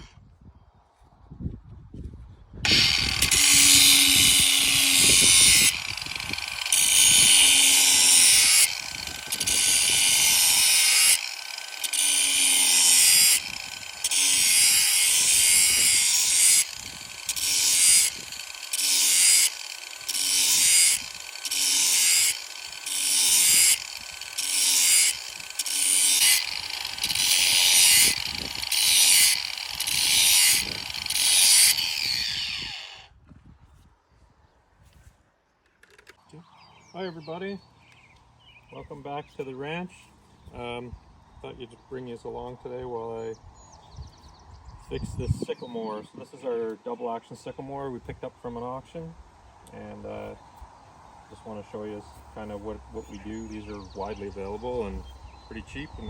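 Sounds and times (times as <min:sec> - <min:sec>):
angle grinder grinding metal: 0:02.6 - 0:33.1, 0:51.4 - 0:56.0.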